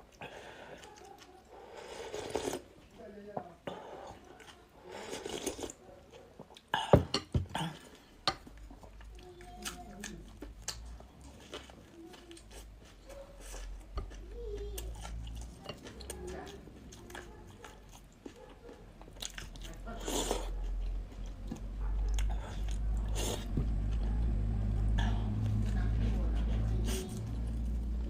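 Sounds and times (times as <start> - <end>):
chewing and mouth noises: 0.0 - 2.9, 3.7 - 6.9, 7.6 - 28.0
dishes or cutlery clinking: 7.0 - 7.5.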